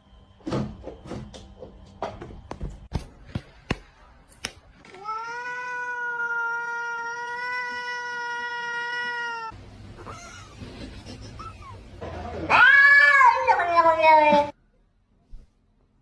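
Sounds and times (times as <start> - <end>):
cat yowling: 4.9 - 10.5, 12.5 - 14.5.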